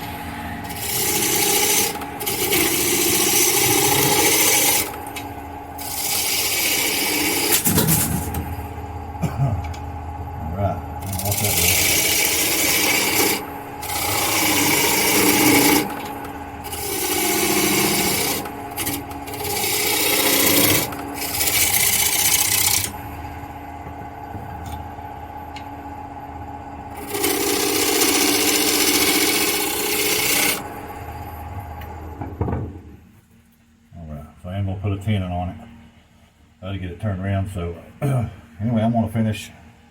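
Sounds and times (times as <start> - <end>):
wood lathe humming: 0.0 - 32.7
gouge shaving spinning wood: 0.6 - 9.2, 10.7 - 25.0, 26.4 - 32.1.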